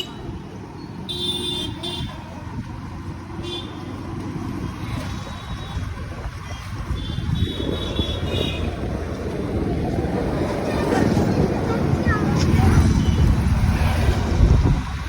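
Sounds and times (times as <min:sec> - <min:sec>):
wind and road noise: 0:00.0 - 0:15.0
vehicle horn beeps: 0:06.9 - 0:08.8.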